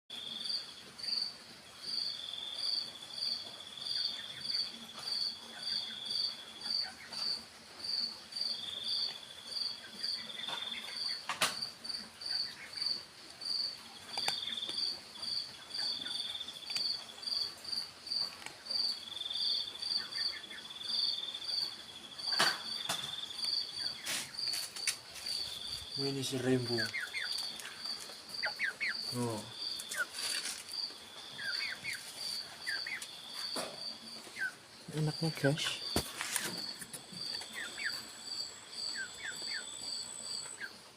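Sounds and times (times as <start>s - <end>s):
insect chirping: 0.1s - 40.9s
insect trilling: 11.8s - 40.9s.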